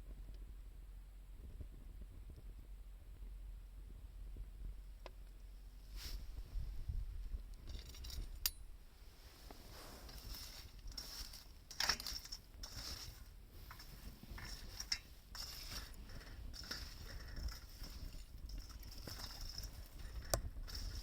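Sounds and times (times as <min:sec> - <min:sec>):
faint steady hiss: 0:02.3 - 0:21.0
wood fire crackling and popping: 0:10.2 - 0:21.0.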